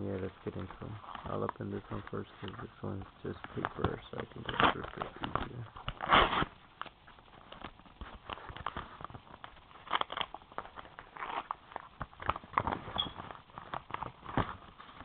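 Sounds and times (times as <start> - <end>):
paper envelope tearing: 3.3 - 6.6, 7.5 - 15.0.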